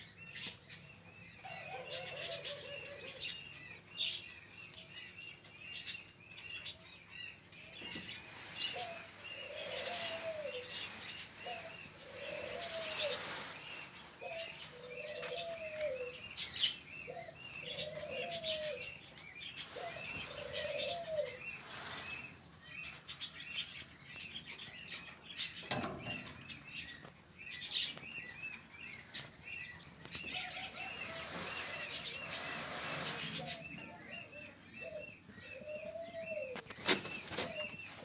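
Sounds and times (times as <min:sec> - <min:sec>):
small birds chirping: 0:00.0 - 0:38.0
low arched bird calls: 0:07.6 - 0:23.4, 0:25.6 - 0:38.0.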